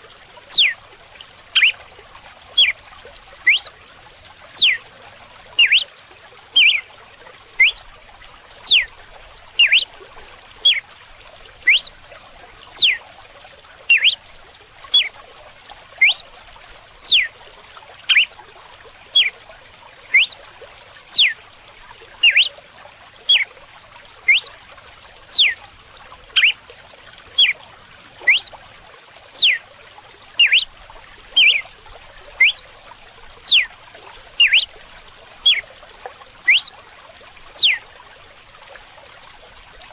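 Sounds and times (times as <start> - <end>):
running water: 0.0 - 39.9
bird whistling song: 0.5 - 0.8, 1.6 - 1.8, 2.6 - 2.8, 3.4 - 3.8, 4.5 - 4.8, 5.6 - 5.9, 6.6 - 6.9, 7.6 - 7.9, 8.6 - 8.9, 9.6 - 9.9, 10.6 - 10.8, 11.6 - 12.0, 12.7 - 13.0, 13.9 - 14.2, 14.9 - 15.1, 16.0 - 16.3, 17.0 - 17.3, 18.1 - 18.3, 19.1 - 19.4, 20.1 - 20.4, 21.1 - 21.4, 22.2 - 22.6, 23.3 - 23.5, 24.3 - 24.6, 25.3 - 25.6, 26.4 - 26.6, 27.4 - 27.6, 28.2 - 28.6, 29.3 - 29.6, 30.4 - 30.7, 31.4 - 31.7, 32.4 - 32.7, 33.4 - 33.7, 34.4 - 34.7, 35.4 - 35.7, 36.4 - 36.8, 37.5 - 37.8.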